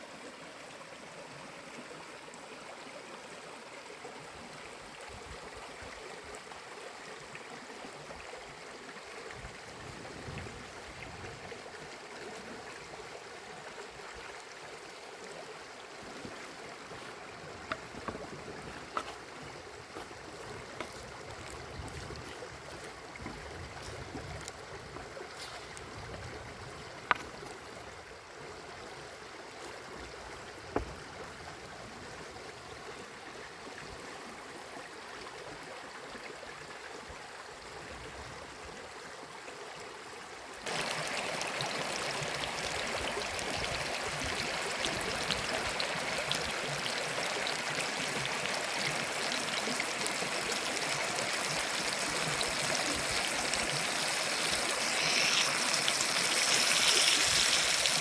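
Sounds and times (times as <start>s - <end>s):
fish sizzling in a pan: 54.1s - 58.0s.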